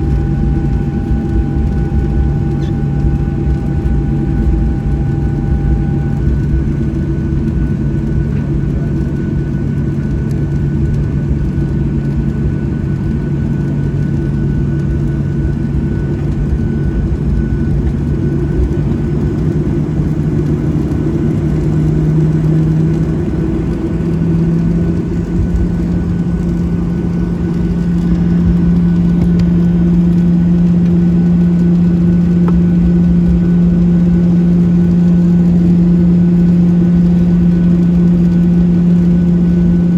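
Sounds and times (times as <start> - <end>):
cabin air system hum: 0.0 - 9.4, 12.9 - 39.9
jet engines idling: 0.0 - 39.9.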